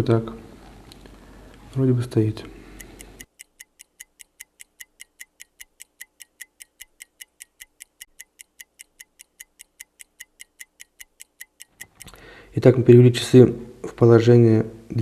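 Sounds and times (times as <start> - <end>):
clock ticking: 2.8 - 12.2.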